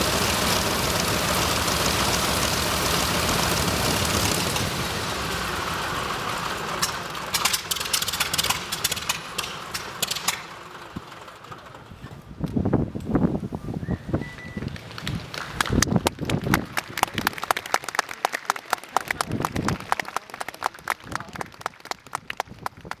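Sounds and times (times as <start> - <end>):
engine pops and clatters: 0.0 - 13.4
radial aircraft engine running: 0.0 - 13.6.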